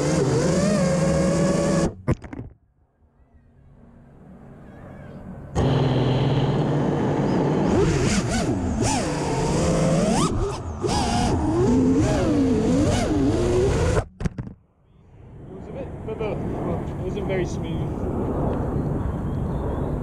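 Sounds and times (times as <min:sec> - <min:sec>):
drone motors whining: 0:00.0 - 0:14.2
wind and propeller hiss: 0:03.0 - 0:14.0, 0:14.7 - 0:20.0.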